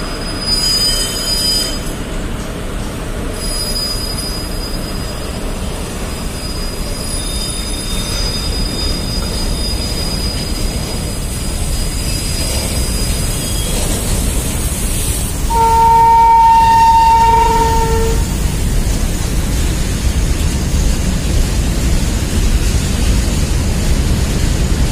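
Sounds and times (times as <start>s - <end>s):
high wheel squeal: 0.0s - 2.0s, 3.4s - 14.5s, 15.5s - 18.3s
train wheels rumbling on track: 0.0s - 24.9s
train horn: 15.5s - 18.4s.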